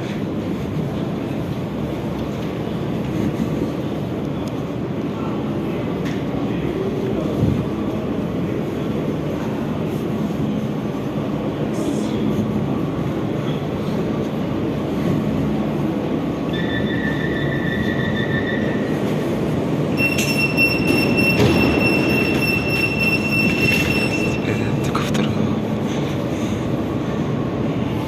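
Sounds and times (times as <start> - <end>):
metro train rumbling: 0.0 - 28.0
high-pitched wheel squeal: 16.5 - 19.0, 20.0 - 24.4.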